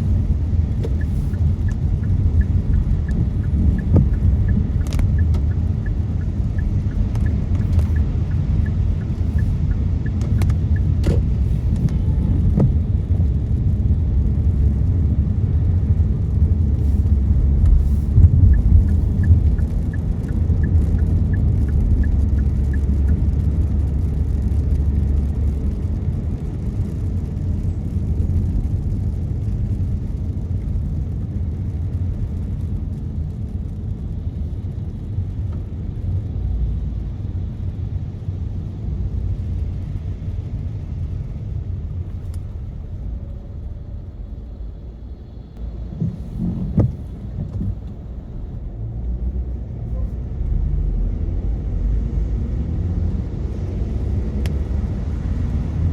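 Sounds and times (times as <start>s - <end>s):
light clicks and ticks: 0.0s - 12.8s, 16.8s - 23.4s
car road and engine rumble: 0.0s - 55.9s.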